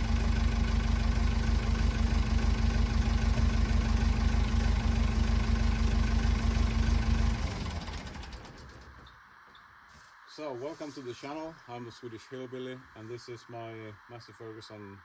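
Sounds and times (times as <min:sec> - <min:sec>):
backhoe engine running: 0:00.0 - 0:09.1.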